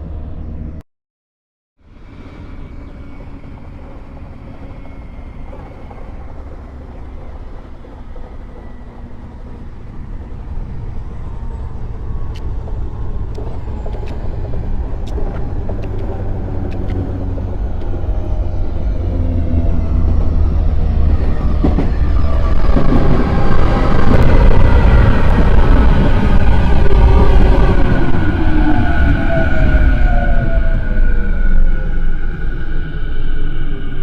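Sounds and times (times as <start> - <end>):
train rumble and motor hum: 0.0 - 0.8, 1.8 - 34.0
train wheel clicks on rails: 11.8 - 18.4.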